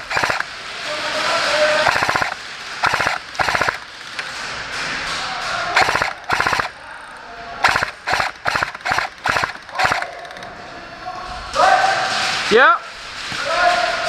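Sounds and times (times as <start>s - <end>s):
airsoft guns firing bursts: 0.0s - 4.1s, 5.7s - 6.8s, 7.6s - 10.4s.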